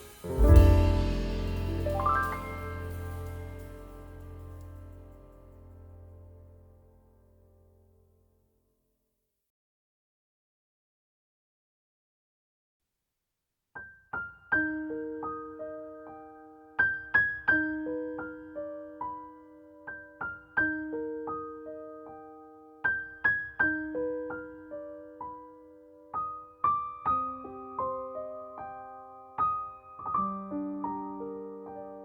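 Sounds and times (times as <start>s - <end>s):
soft piano music: 0.0s - 7.2s, 14.2s - 32.0s.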